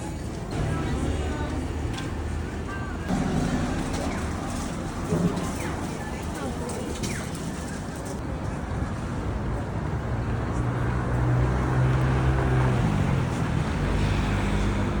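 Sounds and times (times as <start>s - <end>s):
traffic noise: 0.0s - 15.0s
vehicle engine humming: 0.0s - 15.0s.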